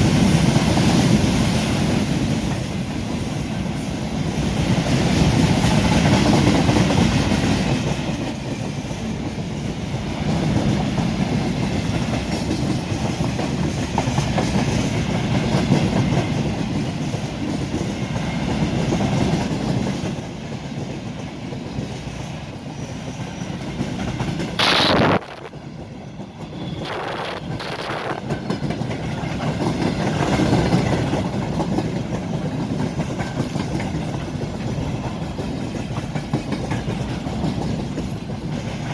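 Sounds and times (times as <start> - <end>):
freight train wheels clattering: 0.0 - 24.6, 25.6 - 38.9
loud high-pitched sound: 24.6 - 25.8.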